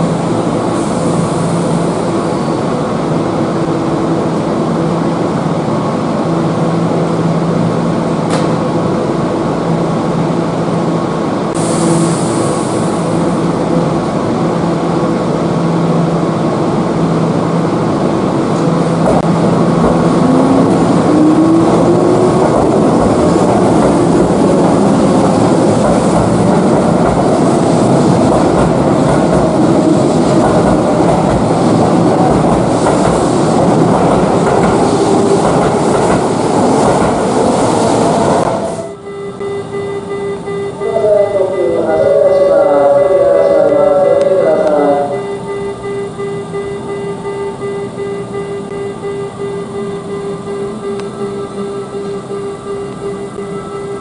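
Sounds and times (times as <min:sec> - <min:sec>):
train wheels clattering on rails: 0:21.7 - 0:38.6
train motor whine: 0:47.1 - 0:54.0.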